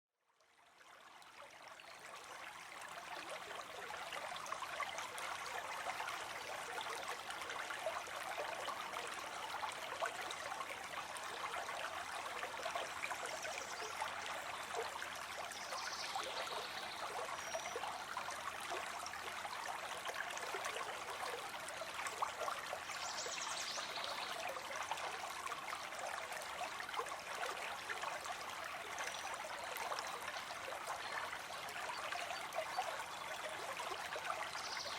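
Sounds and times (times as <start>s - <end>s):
small stream trickling: 0.2s - 34.9s.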